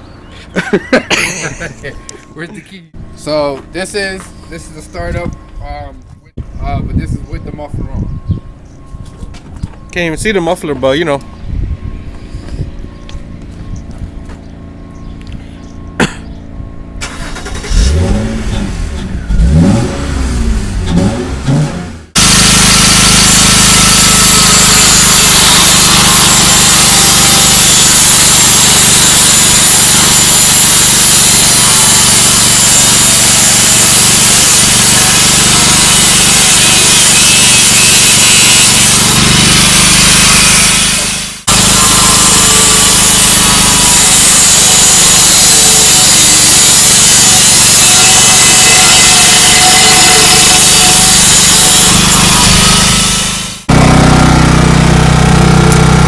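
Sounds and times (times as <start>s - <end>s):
power saw cutting metal pipe: 22.2s - 56.0s.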